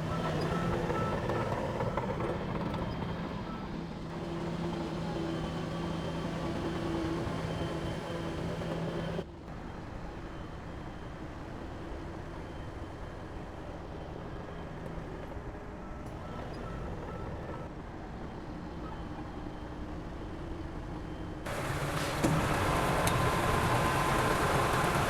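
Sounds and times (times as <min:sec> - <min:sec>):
diesel machinery engine running: 0:00.0 - 0:09.2, 0:19.5 - 0:25.0.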